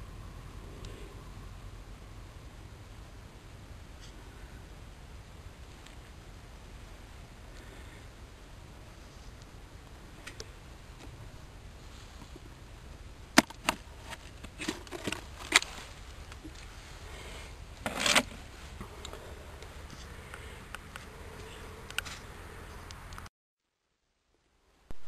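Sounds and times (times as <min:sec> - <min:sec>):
low steady background noise: 0:00.0 - 0:25.0
scraping rustle: 0:10.1 - 0:12.6, 0:13.5 - 0:20.2.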